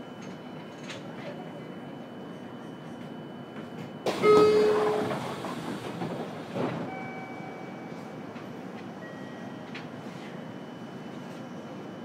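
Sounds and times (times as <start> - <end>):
low steady train background: 0.0 - 12.0
loud burst inside train: 4.0 - 7.7
short horn-like tone: 4.2 - 5.2.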